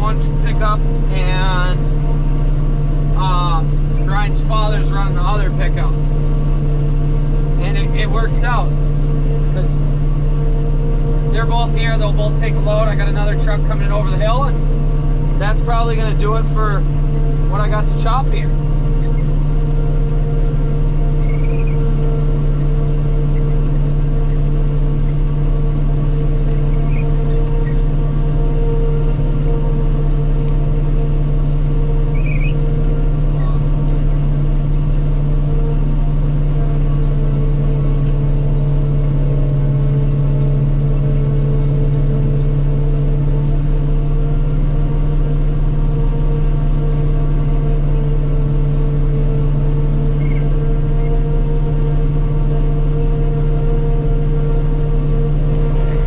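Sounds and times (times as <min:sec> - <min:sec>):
harvester engine and machinery drone: 0:00.0 - 0:56.0
faint short high squeaks: 0:19.0 - 0:19.3, 0:21.1 - 0:21.9, 0:26.4 - 0:27.9, 0:32.1 - 0:32.7, 0:50.1 - 0:51.2.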